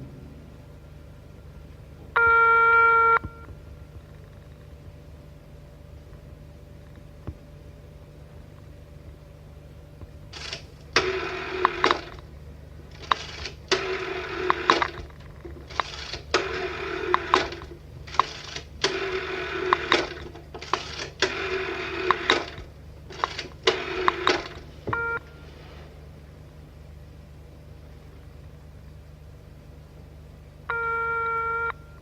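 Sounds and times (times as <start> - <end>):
telephone bell ringing: 2.2 - 3.2, 30.7 - 32.0.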